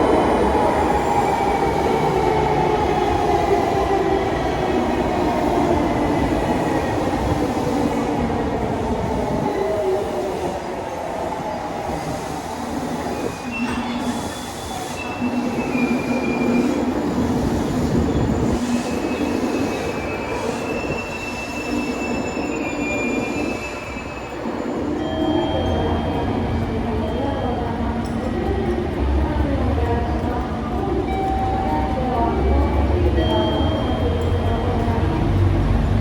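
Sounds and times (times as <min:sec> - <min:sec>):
train rumbling on rails: 0:00.0 - 0:36.0
wheel squeals: 0:17.9 - 0:26.4.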